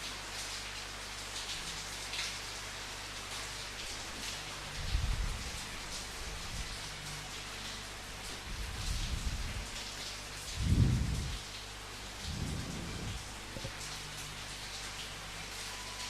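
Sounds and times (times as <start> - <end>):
rain pattering: 0.0 - 16.0
thunder rolling: 10.6 - 11.4, 12.2 - 13.7.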